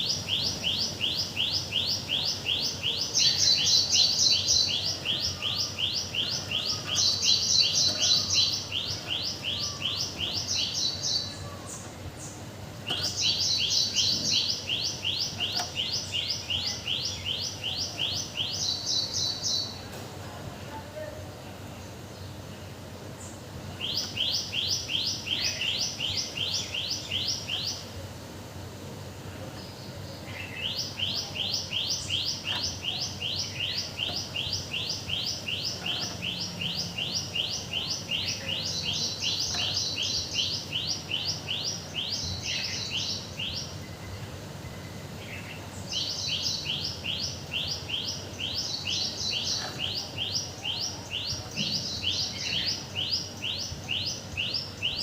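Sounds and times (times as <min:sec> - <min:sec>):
bird chirping rapidly: 0:00.0 - 0:19.7, 0:30.4 - 0:43.8, 0:45.3 - 0:55.0.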